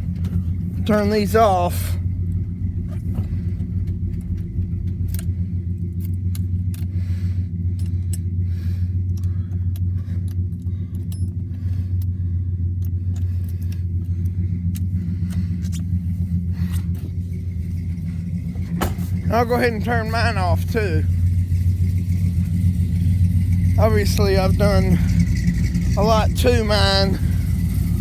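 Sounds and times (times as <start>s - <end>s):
pickup engines idling: 0.0s - 28.0s
clicks and jingles like keys: 9.1s - 12.1s.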